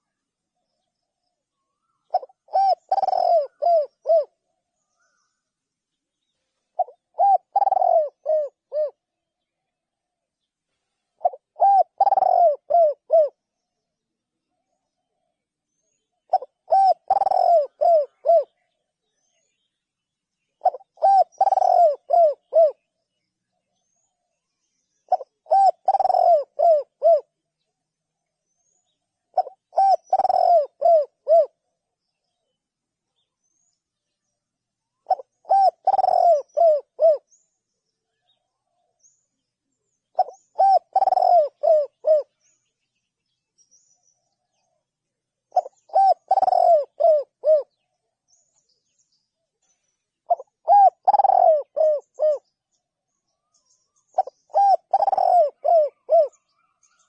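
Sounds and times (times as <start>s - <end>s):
dove cooing: 1.7s - 4.4s, 6.7s - 9.0s, 11.2s - 13.4s, 16.2s - 18.7s, 20.6s - 22.9s, 25.1s - 27.3s, 29.3s - 31.6s, 35.0s - 37.3s, 40.1s - 42.4s, 45.5s - 47.8s, 50.2s - 52.5s, 54.1s - 57.0s.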